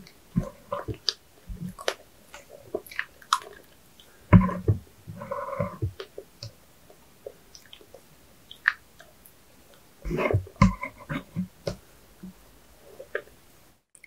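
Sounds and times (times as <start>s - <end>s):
chewing with soft squishes: 0.0s - 4.2s, 5.2s - 11.2s
mouth clicks: 7.5s - 9.4s.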